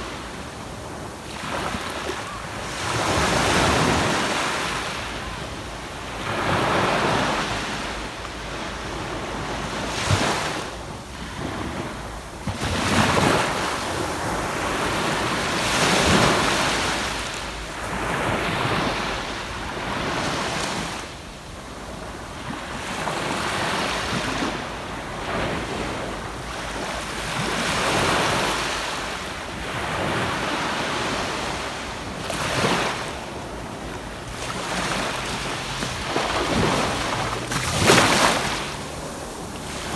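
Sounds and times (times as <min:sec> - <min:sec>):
ocean waves breaking on beach: 0:00.0 - 0:39.9
wind buffeting microphone: 0:31.2 - 0:39.9.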